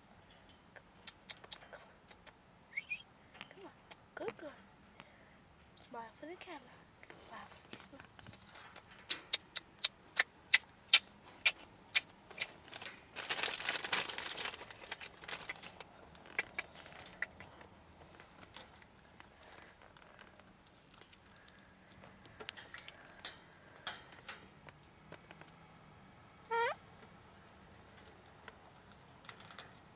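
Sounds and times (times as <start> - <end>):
crackling rustle: 3.4 - 25.6, 27.2 - 29.9.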